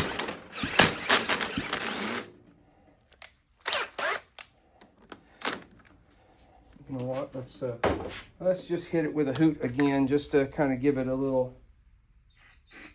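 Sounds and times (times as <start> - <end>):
cordless drill spinning engine: 0.0 - 2.5, 3.2 - 4.5.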